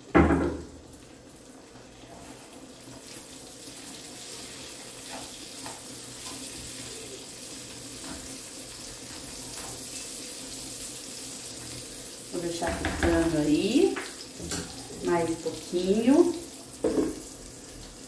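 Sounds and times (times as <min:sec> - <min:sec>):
sausage sizzling in a frying pan: 0:00.0 - 0:18.0.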